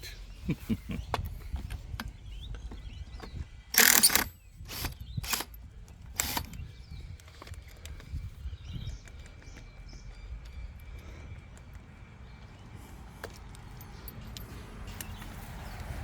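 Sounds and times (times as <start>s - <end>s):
impact wrench bursts: 3.7s - 5.6s, 6.2s - 6.6s.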